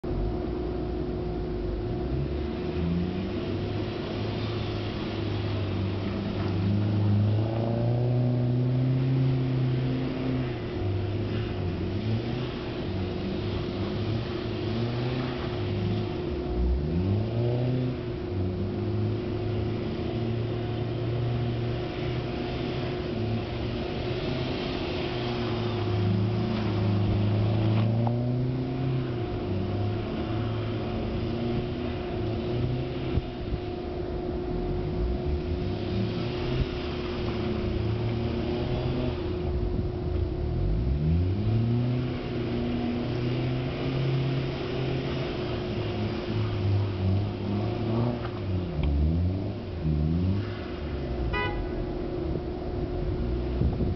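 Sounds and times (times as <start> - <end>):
car engine revving: 0.0 - 53.9.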